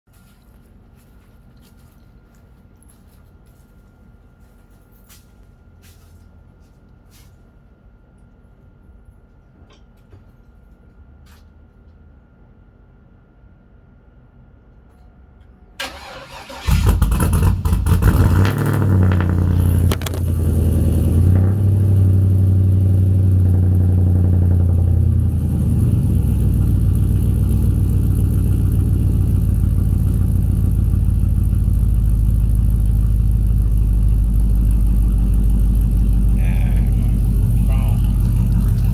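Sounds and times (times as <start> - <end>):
engine starter cranking: 15.8 - 18.6
car engine idling: 15.8 - 38.9.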